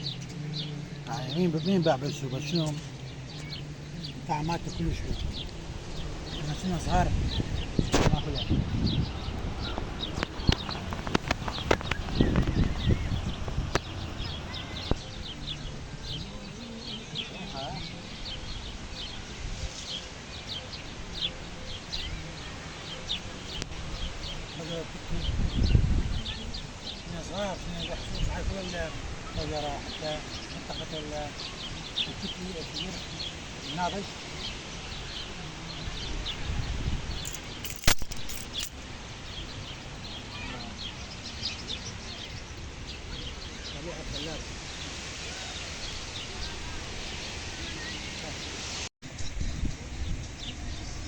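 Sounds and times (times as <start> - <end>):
low outdoor rush: 0.0 - 51.0
small birds chirping: 0.0 - 51.0
sharp click: 37.3 - 38.8.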